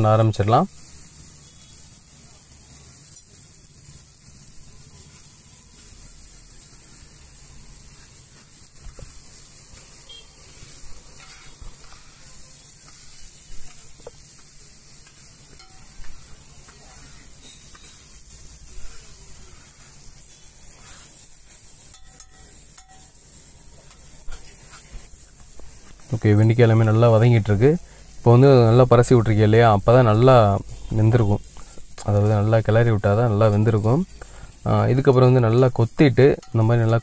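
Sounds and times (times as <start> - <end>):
okra sizzling in oil: 0.0 - 37.0
metal spatula scraping griddle: 8.0 - 23.2, 23.8 - 25.2, 34.2 - 37.0.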